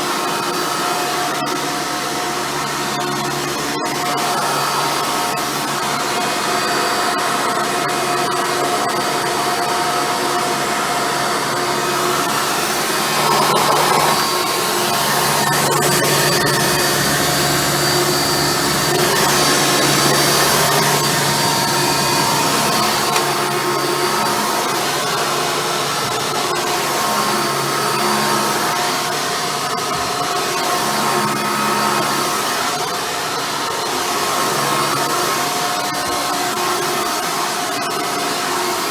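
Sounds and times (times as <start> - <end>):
upright vacuum cleaner running: 10.5 - 29.4.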